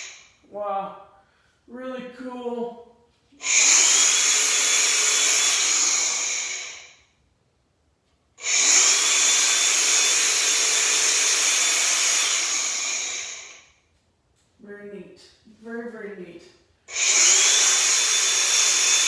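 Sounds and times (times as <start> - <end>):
angle grinder whining: 3.4 - 6.9, 8.4 - 13.6, 16.9 - 19.0.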